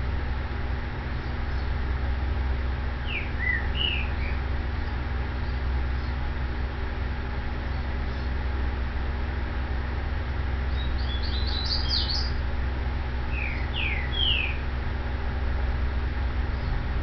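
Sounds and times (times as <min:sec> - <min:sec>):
steady low hum: 0:00.0 - 0:17.0
bird chirping and whistling: 0:03.0 - 0:04.4, 0:10.7 - 0:12.4, 0:13.3 - 0:14.6.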